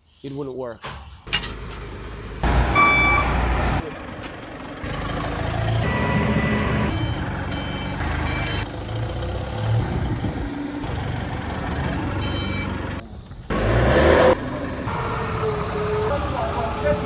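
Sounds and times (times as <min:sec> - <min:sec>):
heavy machinery diesel engine running: 0:01.3 - 0:17.0
reversing alarm beeping: 0:02.5 - 0:03.8, 0:05.6 - 0:08.7, 0:12.1 - 0:13.0.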